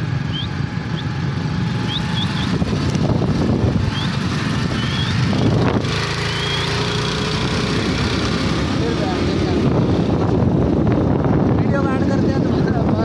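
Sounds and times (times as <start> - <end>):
motorbike engine running: 0.0 - 13.0
road and wind noise: 0.0 - 13.0
bird chirping: 0.2 - 2.6, 3.8 - 7.0.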